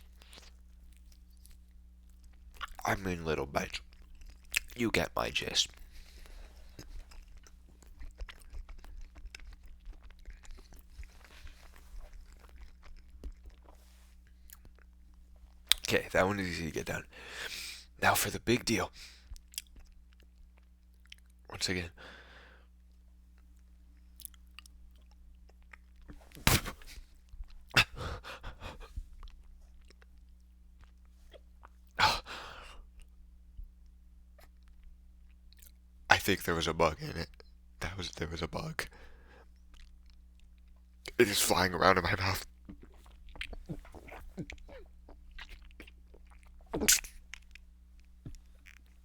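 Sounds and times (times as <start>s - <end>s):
person chewing food: 0.0s - 2.8s, 3.7s - 4.8s, 5.7s - 15.9s, 19.2s - 21.5s, 22.8s - 35.9s, 38.9s - 41.2s, 42.4s - 49.0s
faint low hum: 0.0s - 49.0s
wet mouth smacks and clicks: 15.7s - 15.9s, 42.7s - 47.6s.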